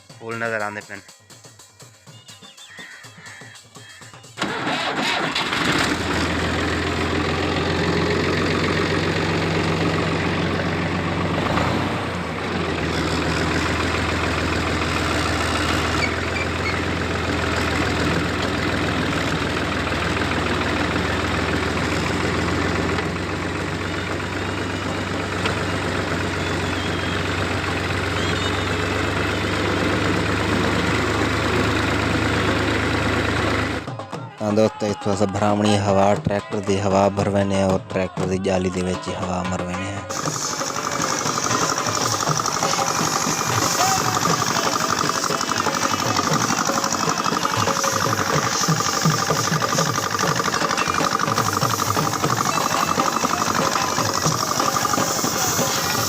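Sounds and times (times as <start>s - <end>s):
tractor engine idling: 0.0s - 33.9s, 35.1s - 56.0s.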